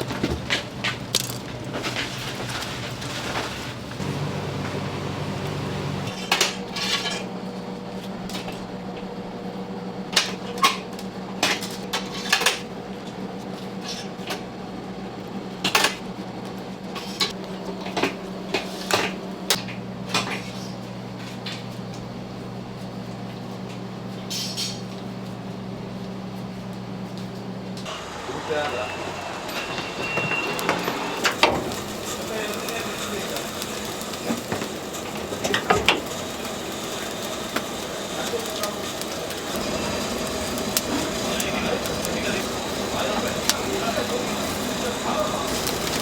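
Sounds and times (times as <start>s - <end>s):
steady low hum: 0.0s - 6.1s
utensils and dishes clinking: 28.3s - 46.0s.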